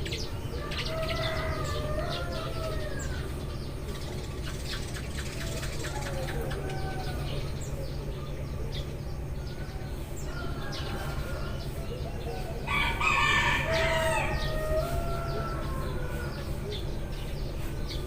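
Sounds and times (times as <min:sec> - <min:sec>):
low background rumble: 0:00.0 - 0:18.0
sparrows chirping: 0:00.0 - 0:18.0.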